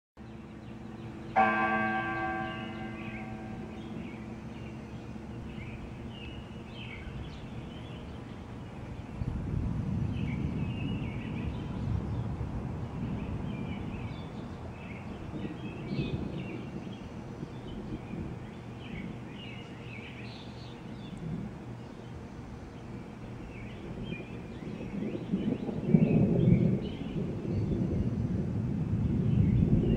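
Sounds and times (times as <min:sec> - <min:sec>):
distant thunder rumbling: 0:01.1 - 0:19.6, 0:20.8 - 0:29.9.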